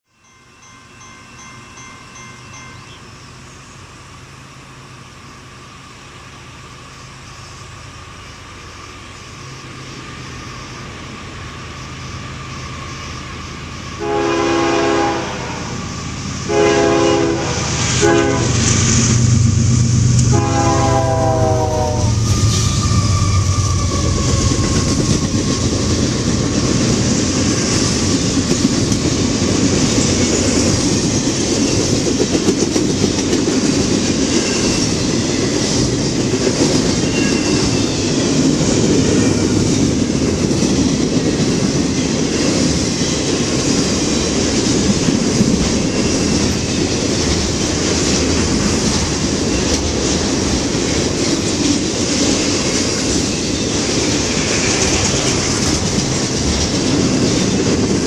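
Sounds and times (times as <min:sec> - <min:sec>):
diesel locomotive engine rumble: 0:00.2 - 0:58.0
train air horn: 0:14.0 - 0:19.1, 0:20.0 - 0:24.0
freight cars rumbling past: 0:14.5 - 0:43.0
wheel clickety-clack: 0:23.8 - 0:58.0.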